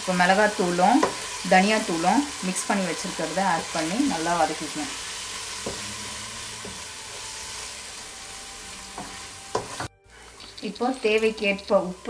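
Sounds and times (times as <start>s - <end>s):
masala sizzling in oil: 0.0s - 12.0s
spoon knocking against pan: 8.9s - 9.9s.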